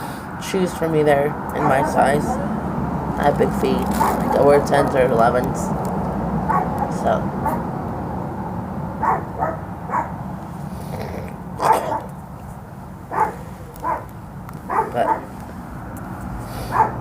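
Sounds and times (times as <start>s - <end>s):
dog barking: 1.6s - 2.5s, 4.0s - 4.3s, 6.5s - 7.7s, 9.0s - 10.2s, 11.6s - 12.1s, 13.1s - 14.1s, 14.7s - 15.3s, 16.7s - 17.0s.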